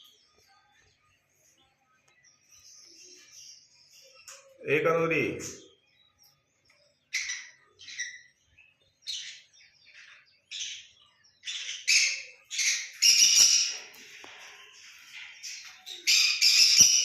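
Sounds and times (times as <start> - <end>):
birds chirping and squawking: 0.0 - 17.0.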